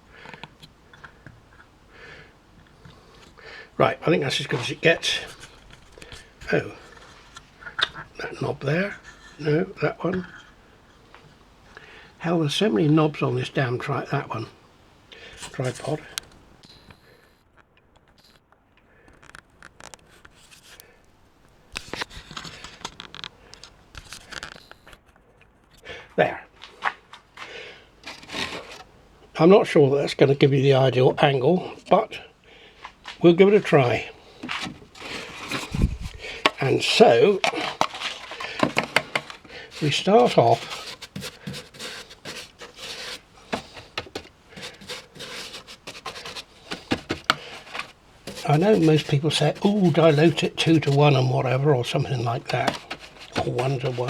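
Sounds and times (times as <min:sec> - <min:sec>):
light rubbing and scratching: 0:03.0 - 0:11.3, 0:15.3 - 0:16.4, 0:19.7 - 0:20.9, 0:28.0 - 0:29.0, 0:32.8 - 0:54.0.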